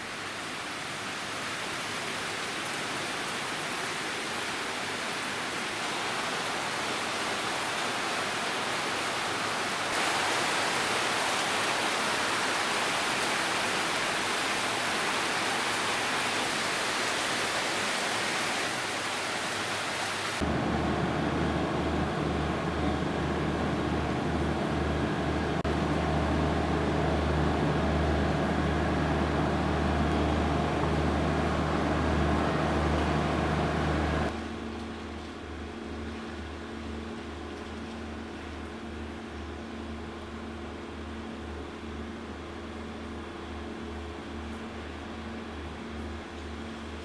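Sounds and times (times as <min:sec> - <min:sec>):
heavy rain hissing: 0:00.0 - 0:34.3
low steady hum: 0:20.4 - 0:35.0.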